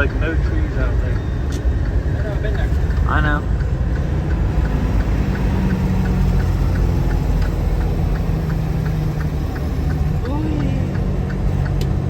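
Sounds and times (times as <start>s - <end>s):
car engine and road hum: 0.0s - 12.0s
faint regular ticking: 0.0s - 12.0s.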